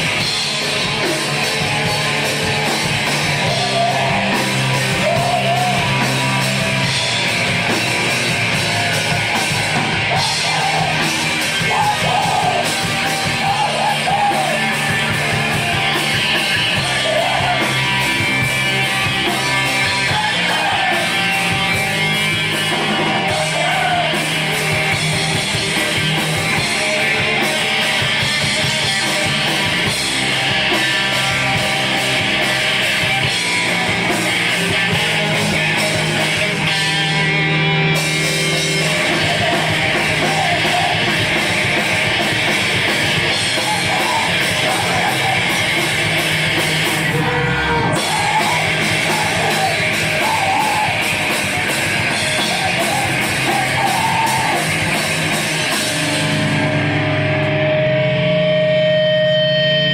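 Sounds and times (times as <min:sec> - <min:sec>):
yelled vocals: 0:00.0 - 0:57.3
distorted electric guitars: 0:00.0 - 0:59.9
drums: 0:00.0 - 0:59.9.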